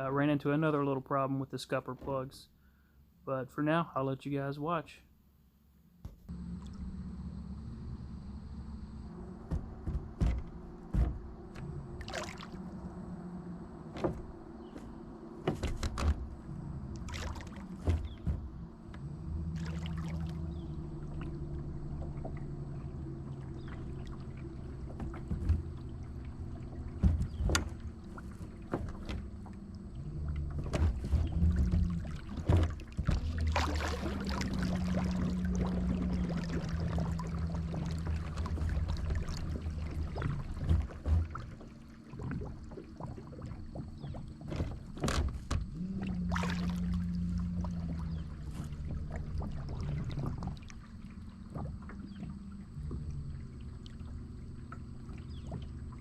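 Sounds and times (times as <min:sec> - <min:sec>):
water noise: 0:06.0 - 0:56.0
sharp knocks: 0:09.4 - 0:11.6.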